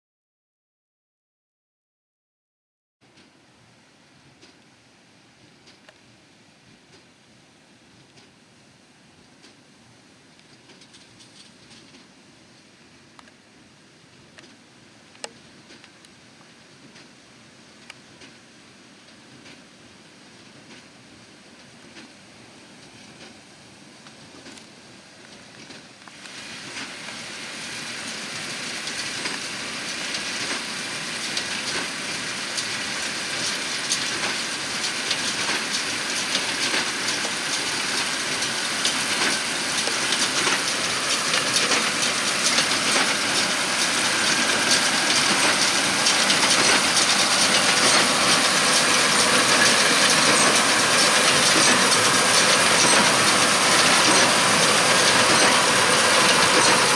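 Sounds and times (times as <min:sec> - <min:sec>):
tractor engine: 0:26.4 - 0:56.9.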